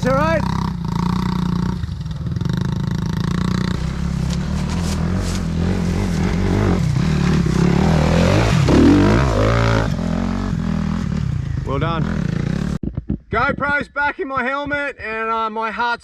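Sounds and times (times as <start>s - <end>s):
small off-road engine revving: 0.0s - 12.8s.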